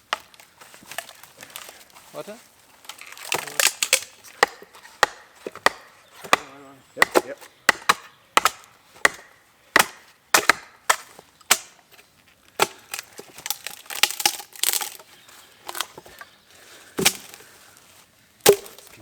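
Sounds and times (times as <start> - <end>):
axe chopping wood: 3.2 - 11.8, 12.6 - 15.0, 17.0 - 17.4, 18.4 - 19.0.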